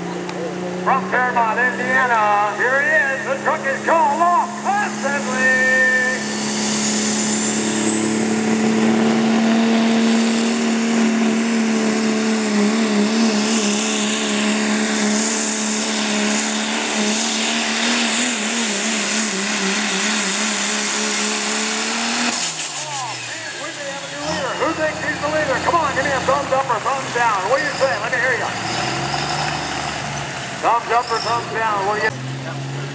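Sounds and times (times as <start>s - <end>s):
diesel engine at high revs: 0.0s - 32.9s
high whine: 1.0s - 20.0s.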